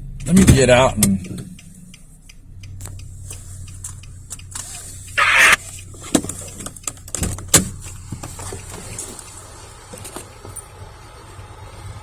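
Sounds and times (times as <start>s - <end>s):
car engine idling hum: 0.0s - 12.0s
car door opening rush: 5.2s - 6.4s.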